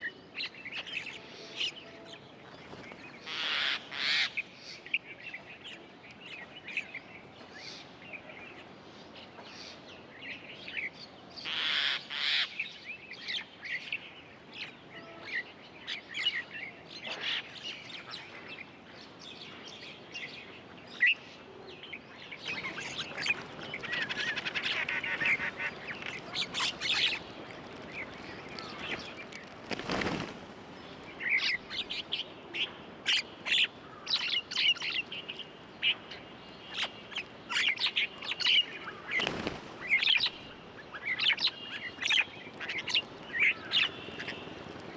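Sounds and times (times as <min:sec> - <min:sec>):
birds chirping and calling: 0:21.8 - 0:44.9.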